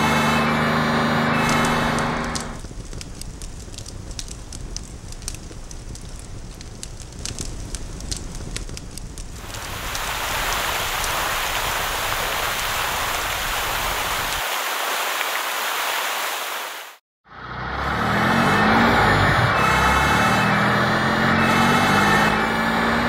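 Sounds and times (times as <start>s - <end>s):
truck engine starting: 0.0s - 2.6s, 17.3s - 23.0s
fire hose spraying water: 0.4s - 17.0s.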